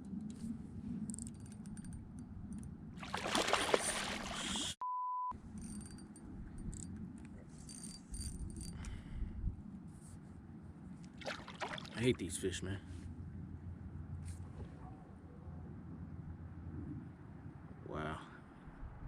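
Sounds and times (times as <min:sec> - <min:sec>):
censor beep: 0:04.8 - 0:05.4.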